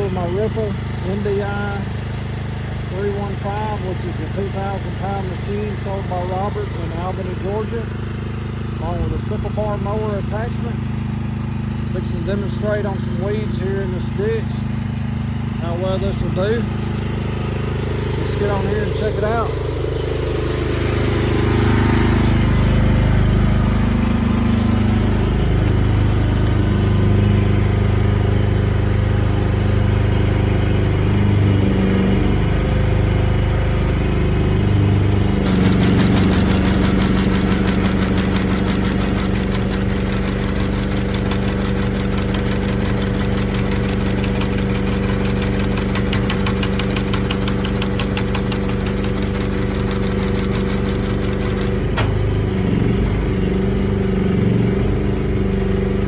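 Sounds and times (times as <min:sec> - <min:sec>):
excavator engine under load: 0:00.0 - 0:56.0
mower cutter chatter: 0:00.0 - 0:56.0.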